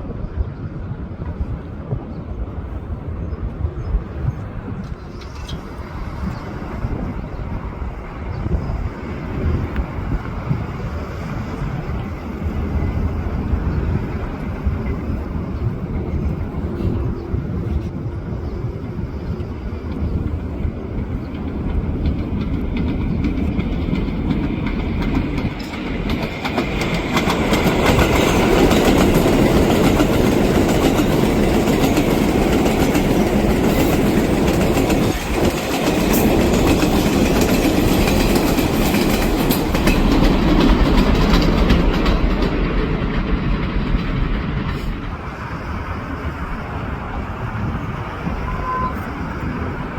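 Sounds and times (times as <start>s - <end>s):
train running on elevated steel: 0.0s - 49.9s
wheels clicking over rail joints: 19.2s - 45.4s.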